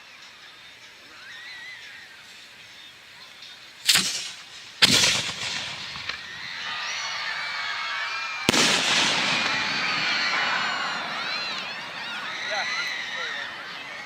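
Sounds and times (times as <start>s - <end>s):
firework shell bangs: 3.8s - 6.6s, 8.5s - 12.4s.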